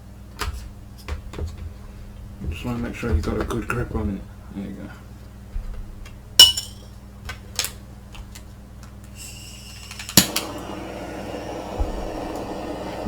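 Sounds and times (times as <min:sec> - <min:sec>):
metal pan and tools clinking: 0:06.4 - 0:06.9
steady hiss: 0:09.1 - 0:13.0.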